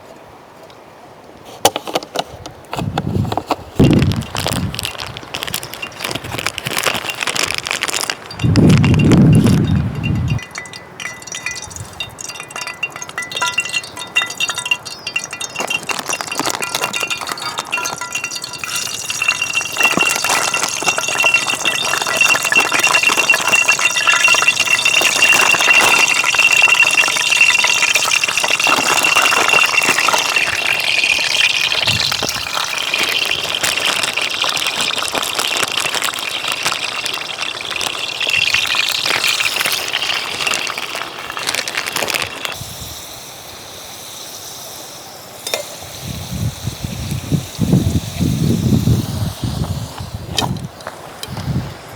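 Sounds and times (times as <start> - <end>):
clinking and rattling: 3.4 - 42.6
thin steady high tone: 8.4 - 31.1
even hiss: 42.0 - 51.9.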